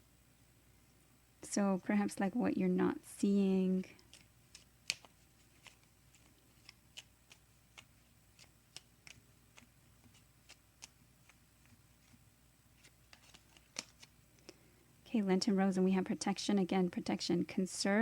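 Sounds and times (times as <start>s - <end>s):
low room hum: 0.0s - 18.0s
cards clicking and tapping: 4.0s - 12.2s, 12.8s - 14.6s.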